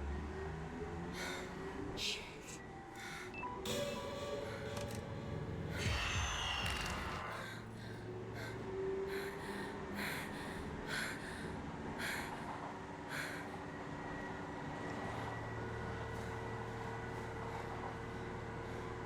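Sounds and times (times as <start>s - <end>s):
steady low hum: 0.7s - 19.0s
person breathing heavily in gasps: 5.7s - 12.5s.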